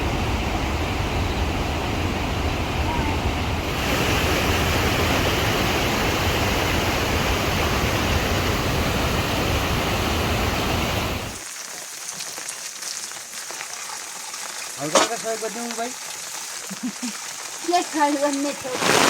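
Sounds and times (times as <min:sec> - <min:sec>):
heavy rain: 0:00.0 - 0:11.4, 0:16.6 - 0:19.0
faint crackles: 0:15.1 - 0:19.0.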